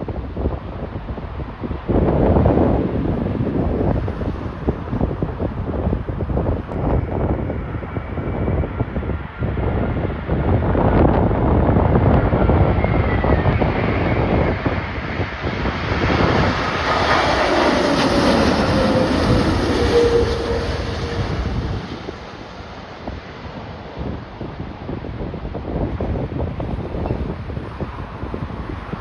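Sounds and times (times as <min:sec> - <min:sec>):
jet engines passing: 0:00.0 - 0:29.0
wind noise on microphone: 0:00.0 - 0:29.0.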